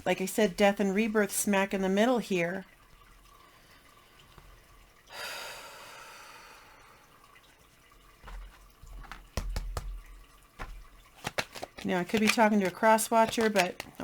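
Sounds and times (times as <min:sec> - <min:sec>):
long breathy exhale: 0:05.1 - 0:07.0.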